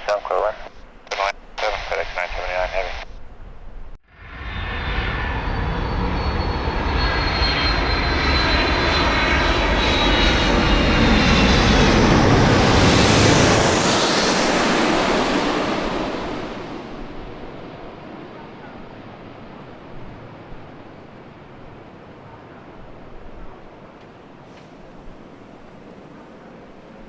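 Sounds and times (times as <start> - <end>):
jet engines rushing: 0.0 - 3.2, 4.1 - 27.0
high whine dropping in pitch: 4.1 - 17.3.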